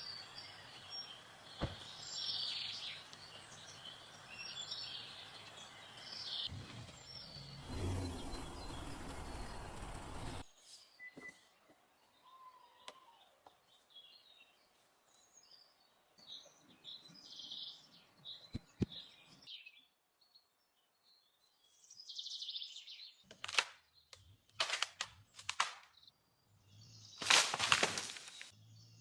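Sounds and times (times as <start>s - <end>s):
small birds chirping: 0.0s - 29.0s
rustling noise: 27.2s - 28.5s.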